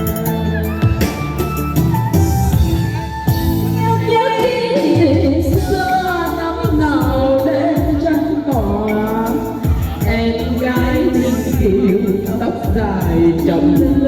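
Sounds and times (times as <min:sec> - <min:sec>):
accompaniment with steady beat: 0:00.0 - 0:14.0
women singing: 0:03.8 - 0:14.0.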